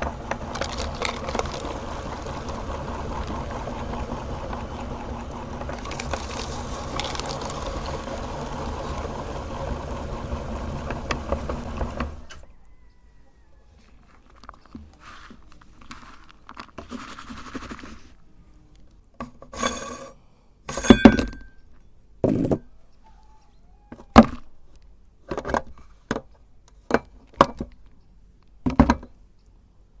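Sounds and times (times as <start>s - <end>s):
meat grinder running: 0.0s - 12.3s
short scrapes: 19.5s - 21.0s.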